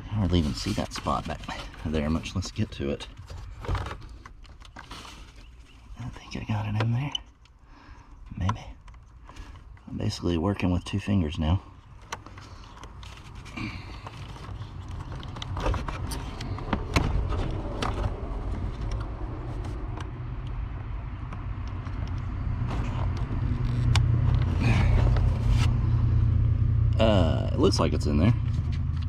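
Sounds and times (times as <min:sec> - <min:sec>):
low rumble: 0:13.0 - 0:29.0.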